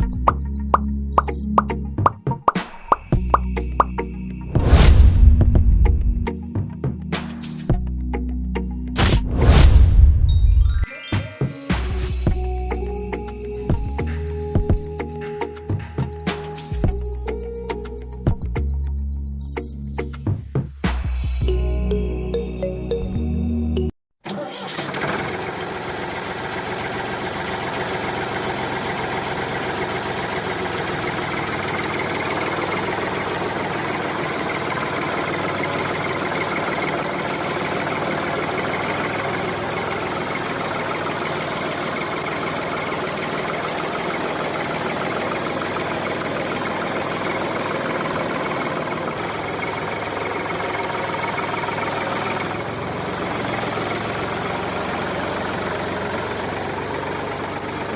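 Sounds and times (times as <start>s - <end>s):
small tractor engine running: 24.2s - 57.9s.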